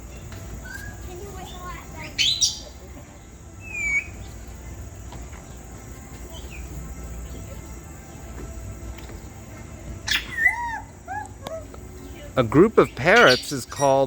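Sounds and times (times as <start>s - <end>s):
steady low hum: 0.0s - 14.0s
parrot falling whistle: 10.1s - 11.2s
parrot screech: 10.1s - 11.3s.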